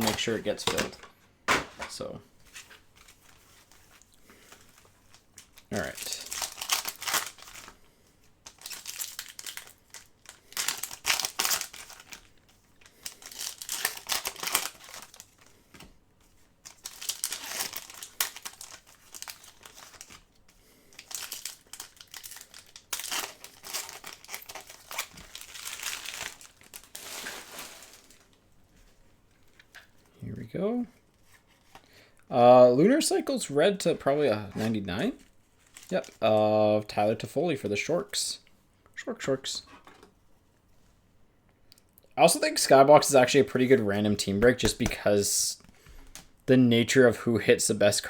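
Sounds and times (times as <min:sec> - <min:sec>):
wrappers tearing and crinkling: 0:03.0 - 0:07.8, 0:08.4 - 0:15.6, 0:16.6 - 0:28.4, 0:35.6 - 0:36.3.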